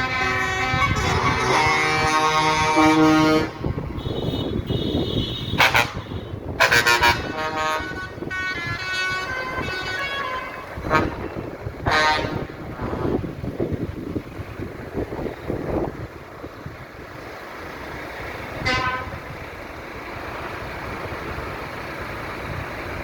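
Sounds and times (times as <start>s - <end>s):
truck horns blasting: 0.0s - 13.4s, 18.4s - 19.5s
trucks passing: 0.0s - 23.0s.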